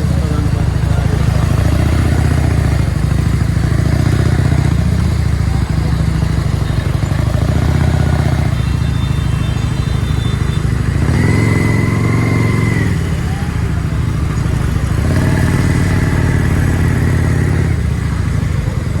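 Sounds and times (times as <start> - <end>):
motorcycle engine running: 0.0 - 19.0
road and traffic noise: 0.0 - 19.0.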